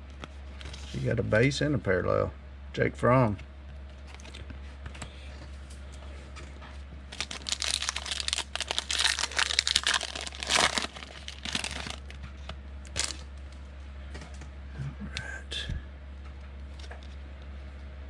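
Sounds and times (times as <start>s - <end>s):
foil card pack tearing: 7.1s - 12.2s, 12.9s - 13.3s
wrapper crinkling: 7.1s - 12.2s, 12.8s - 13.3s.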